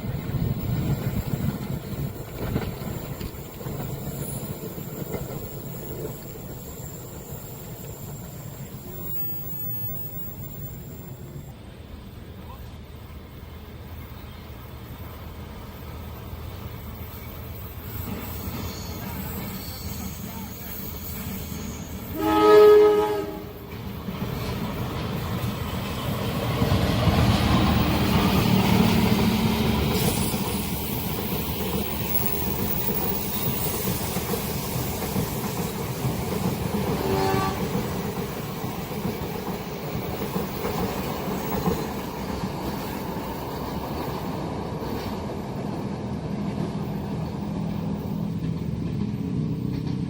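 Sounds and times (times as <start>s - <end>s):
train passing with wheel clatter: 0.0s - 50.0s
train horn blast: 21.5s - 23.7s, 36.9s - 37.9s.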